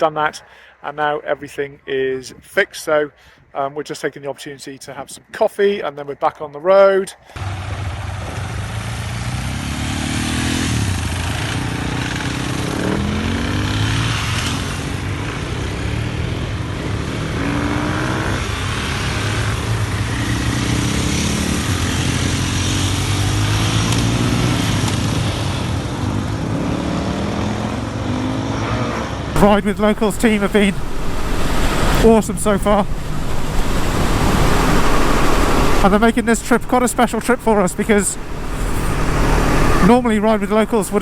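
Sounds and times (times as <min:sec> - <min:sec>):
motorcycle engine accelerating: 0:07.4 - 0:28.4, 0:29.4 - 0:41.0
wind and road noise: 0:07.4 - 0:41.0.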